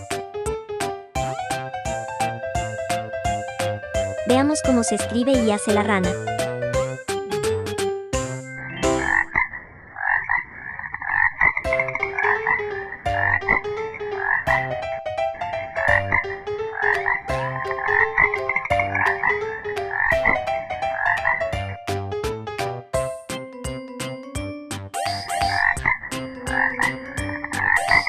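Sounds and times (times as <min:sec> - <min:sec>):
frogs croaking: 0:08.6 - 0:14.7.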